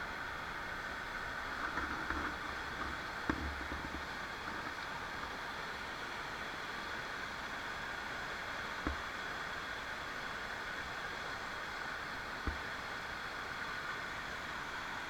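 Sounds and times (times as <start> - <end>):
river water rushing: 0.1 - 15.0.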